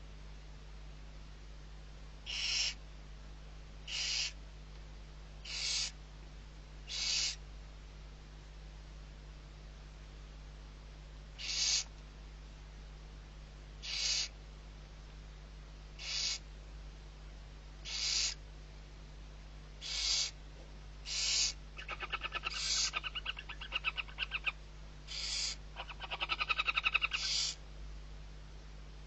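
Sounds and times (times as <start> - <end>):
owl chick hissing screeches: 2.3 - 2.8, 3.9 - 4.4, 5.4 - 6.0, 6.9 - 7.4, 11.4 - 11.9, 13.8 - 14.4, 16.0 - 16.4, 17.8 - 18.4, 19.8 - 20.4, 21.0 - 27.6
rapid pulsed chittering calls: 2.3 - 2.8, 3.8 - 4.4, 5.4 - 6.0, 6.9 - 7.4, 11.4 - 11.9, 13.8 - 14.4, 16.0 - 16.4, 17.8 - 18.4, 19.8 - 20.4, 21.0 - 27.6.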